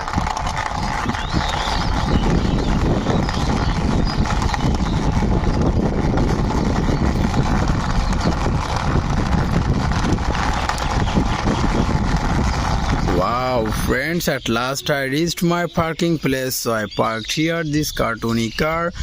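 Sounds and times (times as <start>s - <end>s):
toy car wheels rolling: 0.0s - 19.0s.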